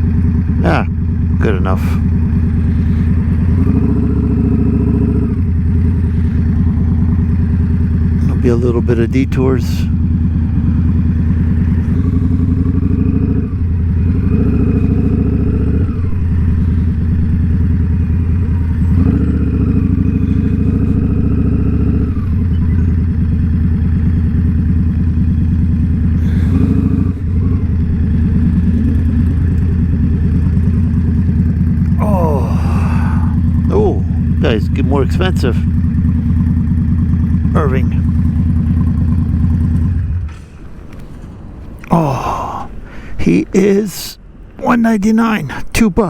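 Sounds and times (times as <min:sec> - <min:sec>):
motorcycle engine running: 0:00.0 - 0:42.2.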